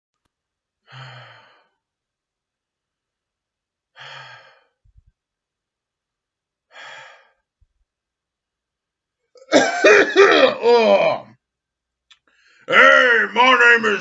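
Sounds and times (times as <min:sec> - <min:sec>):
man sighing: 0:10.2 - 0:11.2.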